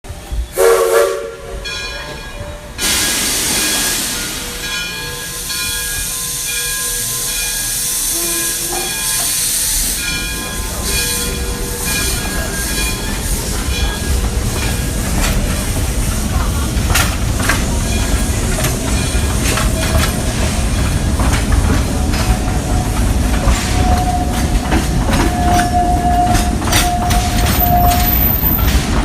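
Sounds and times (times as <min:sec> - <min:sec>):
train running: 0:00.0 - 0:29.0
steam locomotive whistle: 0:00.4 - 0:14.2, 0:22.1 - 0:28.8
steam hissing: 0:02.7 - 0:29.0.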